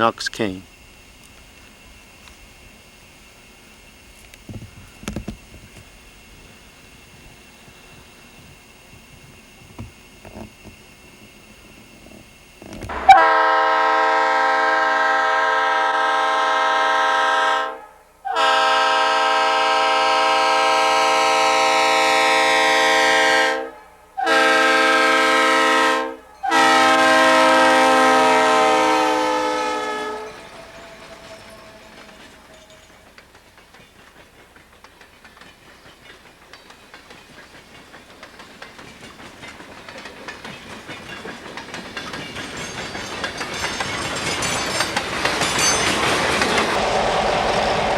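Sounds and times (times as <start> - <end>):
train wheels clicking over rails: 0.7 - 15.4, 24.1 - 47.9
locomotive air horn blasts: 12.9 - 30.4.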